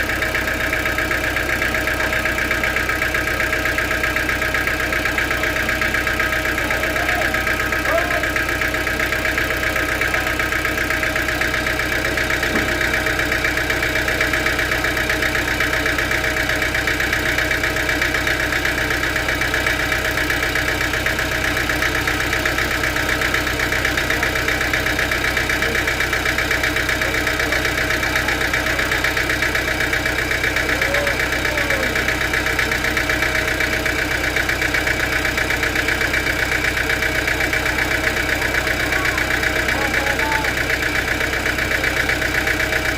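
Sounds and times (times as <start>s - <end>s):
sawmill machinery drone and whine: 4.6s - 16.2s.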